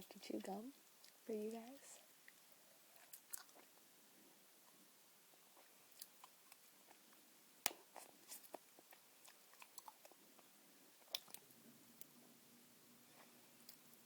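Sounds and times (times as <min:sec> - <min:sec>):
gum chewing: 0:02.3 - 0:03.8, 0:05.5 - 0:12.2.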